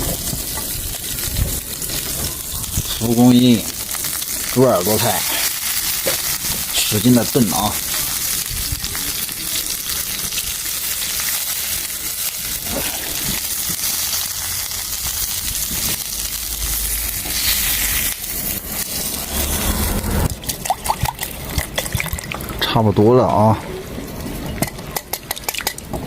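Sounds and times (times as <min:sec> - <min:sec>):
pot sizzling: 0:00.0 - 0:22.6
low rumble: 0:12.9 - 0:21.7.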